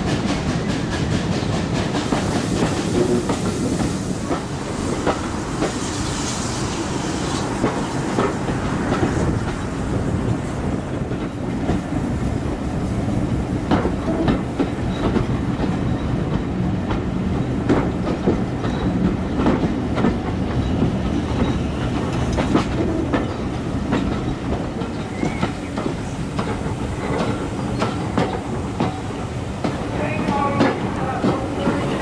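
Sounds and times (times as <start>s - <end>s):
train carriage rumble: 0.0s - 32.0s
wheels clicking over rail joints: 13.7s - 32.0s.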